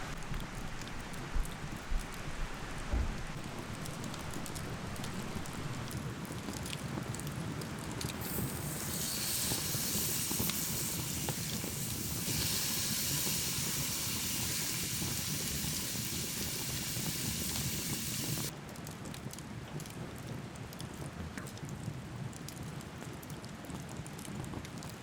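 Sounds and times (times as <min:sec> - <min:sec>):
low crackly patter: 0:00.0 - 0:09.0, 0:18.2 - 0:25.0
steady high hiss: 0:08.2 - 0:18.5.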